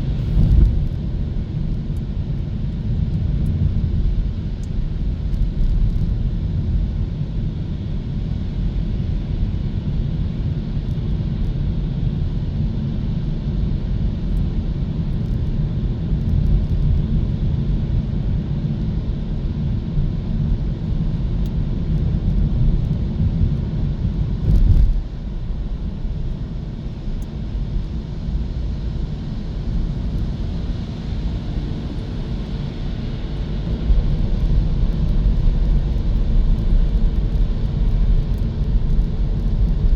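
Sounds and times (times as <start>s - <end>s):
road and tyre noise: 0.0s - 6.8s, 24.1s - 39.9s.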